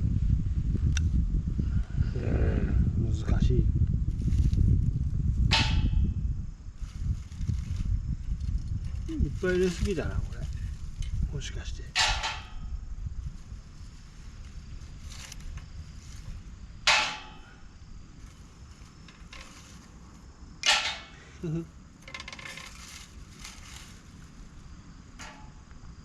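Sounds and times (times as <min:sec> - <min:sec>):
ferro rod scraping: 0:13.4 - 0:21.2, 0:22.0 - 0:24.5.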